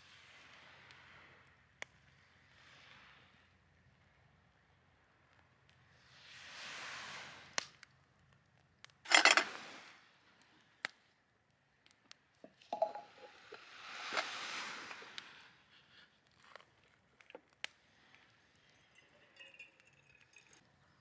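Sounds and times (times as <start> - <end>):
sharp clicks and clinks: 9.1 - 9.5, 12.4 - 14.3.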